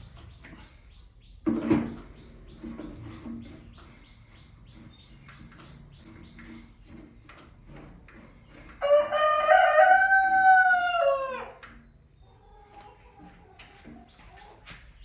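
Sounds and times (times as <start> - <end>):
faint chirps and clicks: 2.0 - 7.5
rooster crowing: 8.8 - 11.6.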